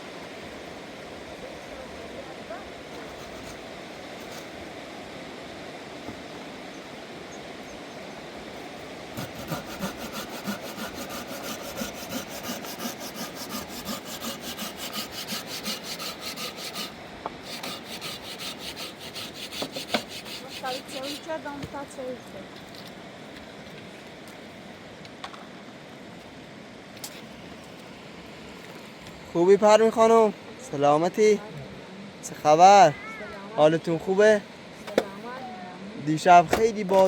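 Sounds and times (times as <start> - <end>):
river rushing: 0.0 - 22.5
hand saw cutting wood: 2.9 - 3.6, 9.2 - 21.4.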